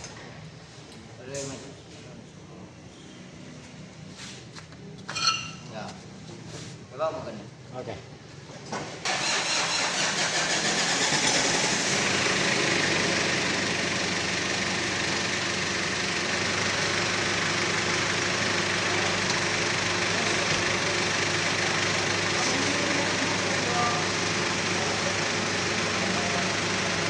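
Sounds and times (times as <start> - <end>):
car engine starting and idling: 9.0 - 27.0.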